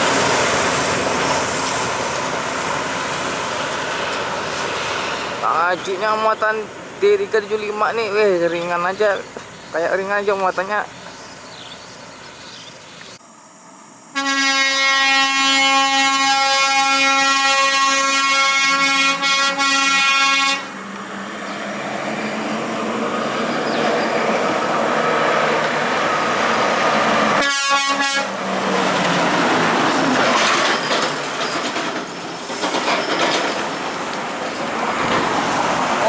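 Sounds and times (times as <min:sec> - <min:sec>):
heavy truck passing by: 0:00.0 - 0:13.0, 0:20.2 - 0:36.0
truck air horn blast: 0:14.1 - 0:20.8, 0:27.4 - 0:28.4.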